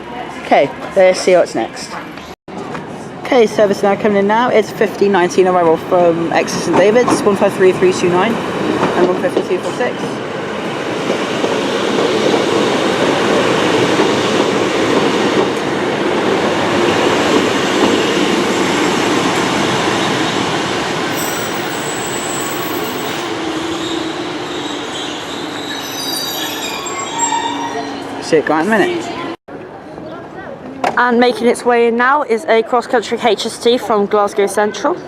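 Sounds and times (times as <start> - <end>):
train engine and wheels rumbling: 5.7 - 28.2
high thin brake squeals: 20.8 - 28.2.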